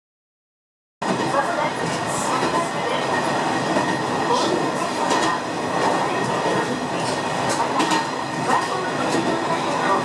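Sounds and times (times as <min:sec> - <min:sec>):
train running rumble: 0:01.0 - 0:10.0.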